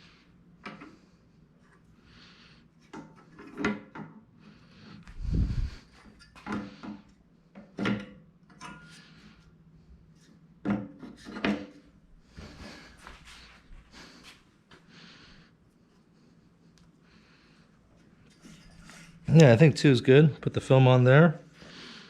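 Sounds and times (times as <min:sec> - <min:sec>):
parts scraping against frame: 0:18.2 - 0:19.3.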